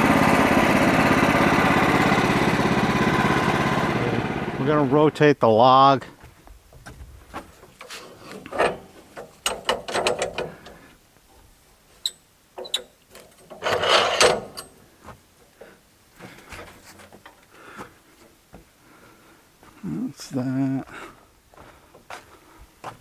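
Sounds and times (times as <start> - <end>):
clicks and knocks on sawmill: 6.8 - 10.9, 12.0 - 15.2
scraping rub: 13.4 - 14.7.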